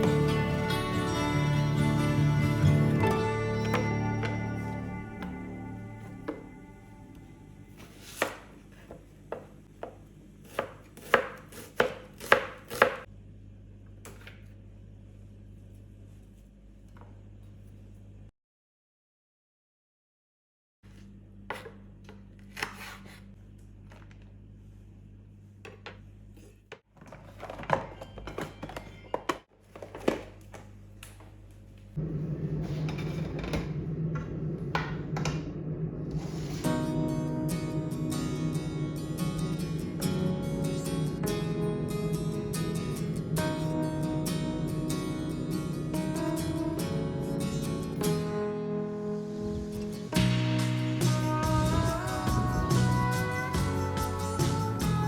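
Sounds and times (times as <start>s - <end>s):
knife chopping on cutting board: 9.3s - 13.1s.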